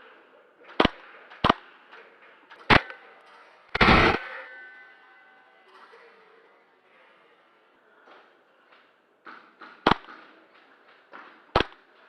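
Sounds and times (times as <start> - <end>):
airsoft gun shots: 0.7 - 1.7, 2.6 - 3.0, 3.8 - 4.3, 9.8 - 10.1, 11.6 - 11.8.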